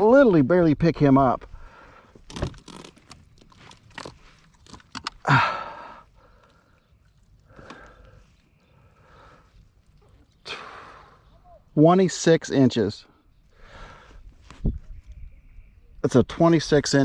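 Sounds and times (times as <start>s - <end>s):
man breathing hard: 1.5s - 2.3s, 5.2s - 9.8s, 10.4s - 11.2s, 13.5s - 14.4s
handling clicks and knocks: 2.2s - 5.2s.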